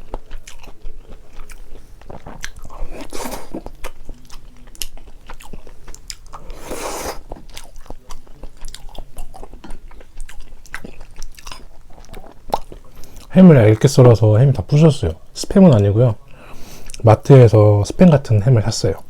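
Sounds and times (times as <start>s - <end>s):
person chewing food: 0.0s - 13.8s, 16.2s - 17.0s.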